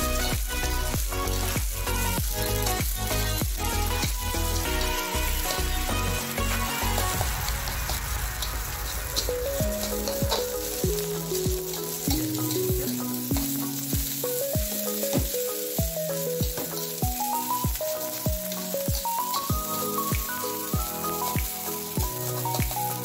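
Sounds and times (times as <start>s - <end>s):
background music with beat: 0.0s - 23.0s
rice sizzling in a wok: 0.0s - 23.0s
metal spatula stirring: 6.8s - 23.0s.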